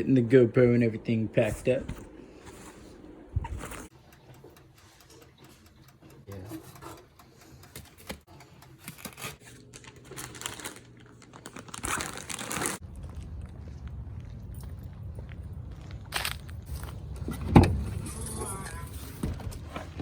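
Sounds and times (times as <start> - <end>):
gear rustling and crinkling: 8.8 - 20.0.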